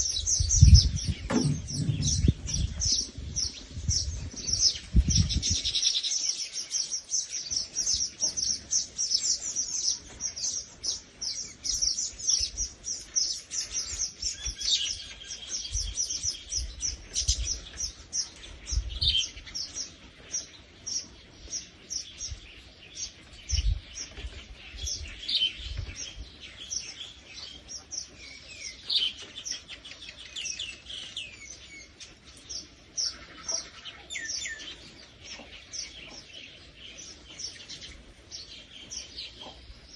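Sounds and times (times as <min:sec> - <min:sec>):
many birds chirping: 0:00.0 - 0:39.9
low thumps: 0:00.4 - 0:04.0.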